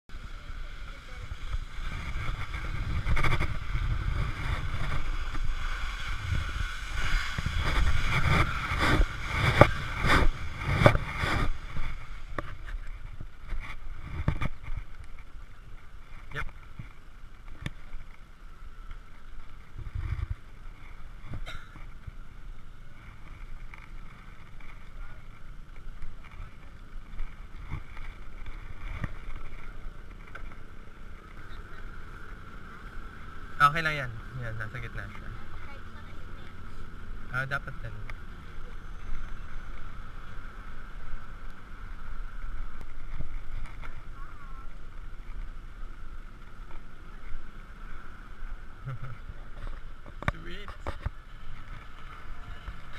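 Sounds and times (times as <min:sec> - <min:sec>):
bicycle rolling rumble: 0:00.0 - 0:52.9
low wind: 0:00.0 - 0:52.9.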